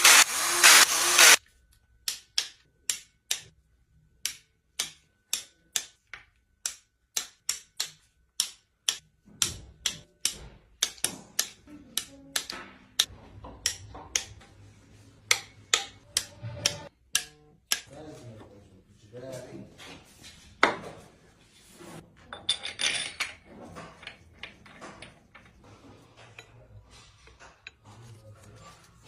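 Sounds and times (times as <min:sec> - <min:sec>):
power tool pulsing: 0:00.0 - 0:01.4.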